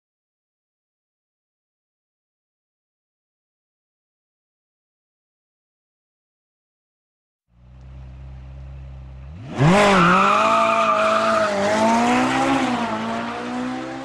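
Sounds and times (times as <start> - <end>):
car engine idling and revving: 7.5 - 14.0.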